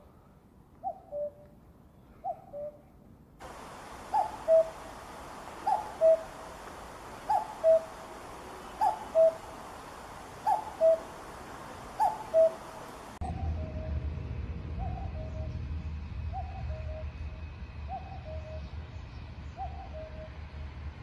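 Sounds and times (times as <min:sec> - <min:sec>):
steady hiss: 0:03.4 - 0:13.2
cuckoo calling: 0:03.4 - 0:13.8.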